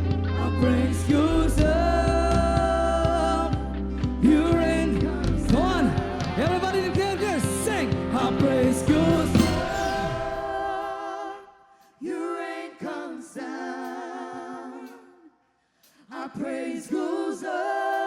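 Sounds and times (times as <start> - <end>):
steady bass: 0.0 - 10.8
worship band with lead vocal: 0.0 - 18.0
voices singing in harmony: 0.4 - 7.2, 8.1 - 18.0.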